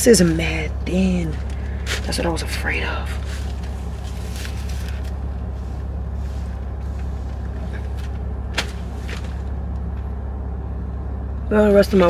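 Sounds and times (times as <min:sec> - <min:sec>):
car idling: 0:00.0 - 0:12.0
plastic packaging rustling: 0:03.2 - 0:05.3.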